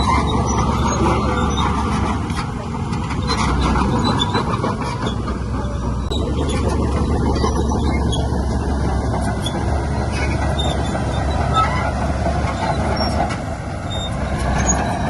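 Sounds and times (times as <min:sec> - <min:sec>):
heavy diesel machinery running: 0:00.0 - 0:15.0
faint metallic squeaks and clinks: 0:09.4 - 0:13.3, 0:13.9 - 0:15.0.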